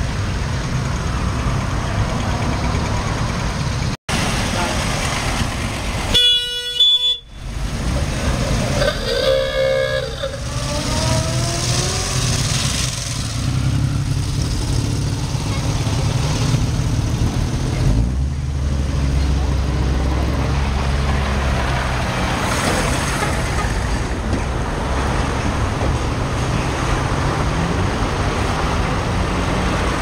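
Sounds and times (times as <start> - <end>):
vehicle engines running: 0.0 - 6.1, 7.3 - 30.0
car horn toots: 6.1 - 7.4, 8.8 - 10.4
rough horn-like tone: 8.8 - 11.6.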